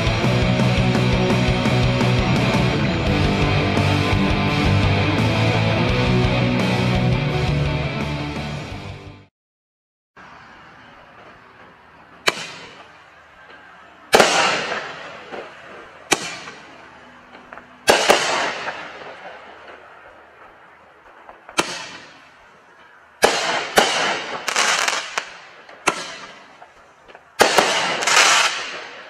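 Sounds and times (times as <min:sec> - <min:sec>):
firework bangs with hiss: 0:12.2 - 0:13.0, 0:14.1 - 0:16.7, 0:17.6 - 0:22.6, 0:23.2 - 0:29.0.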